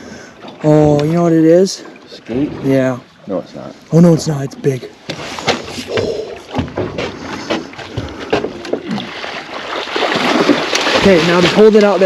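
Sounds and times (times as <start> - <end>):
water rushing and splashing: 0.0 - 12.0
knocks against boat hull: 5.0 - 8.9.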